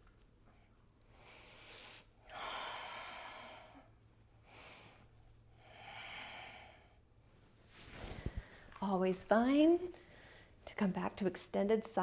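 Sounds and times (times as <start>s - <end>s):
woman breathing deeply: 1.1s - 7.0s.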